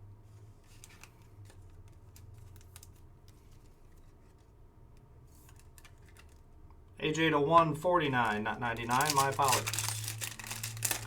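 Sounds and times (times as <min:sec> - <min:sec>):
trading cards clicking and rustling: 0:00.7 - 0:04.5, 0:05.3 - 0:06.6, 0:07.5 - 0:11.0.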